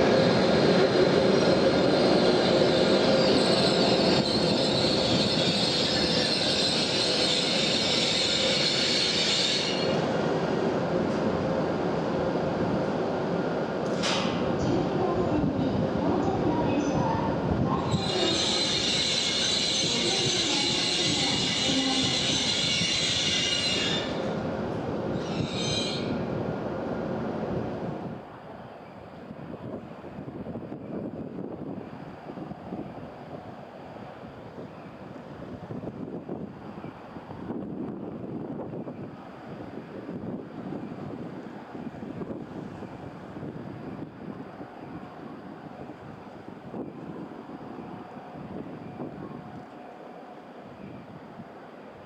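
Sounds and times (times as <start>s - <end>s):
train rumble: 0.0s - 52.0s
high wheel squeal: 1.8s - 10.0s, 17.9s - 24.3s, 25.2s - 26.2s.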